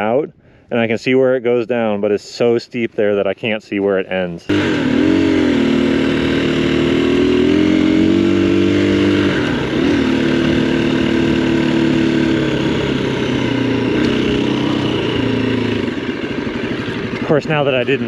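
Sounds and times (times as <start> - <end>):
motorcycle engine idling: 4.5 - 18.0.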